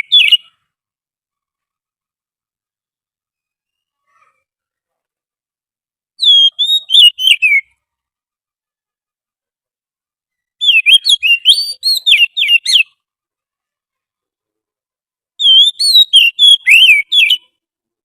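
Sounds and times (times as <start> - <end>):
bird whistled song: 0.0 - 0.7, 6.2 - 7.8, 10.3 - 13.0, 15.4 - 17.6.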